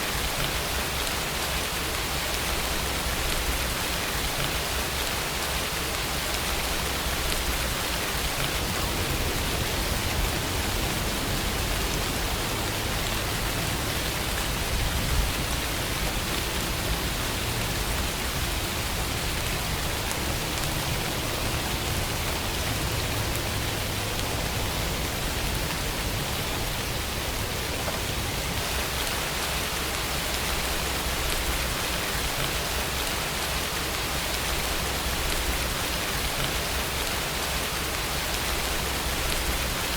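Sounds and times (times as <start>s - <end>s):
rain falling: 0.0s - 39.9s
low rumble: 8.4s - 15.5s.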